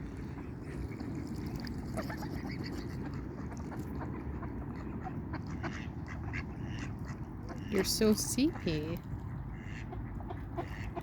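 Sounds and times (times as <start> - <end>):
steady low rumble: 0.0 - 7.7.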